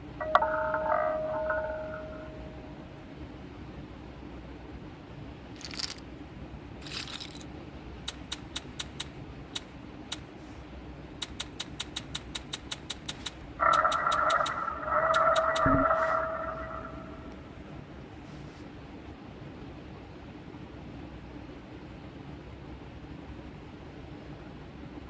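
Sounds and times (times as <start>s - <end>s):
sustained chime tone: 0.2s - 2.9s
rapid sharp clicks: 8.0s - 10.3s, 11.2s - 15.7s.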